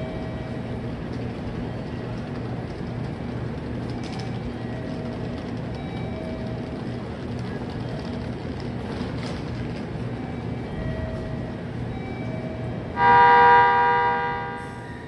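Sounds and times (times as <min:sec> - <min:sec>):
electric train hum: 0:00.0 - 0:15.0
loud warning tone: 0:12.9 - 0:15.0.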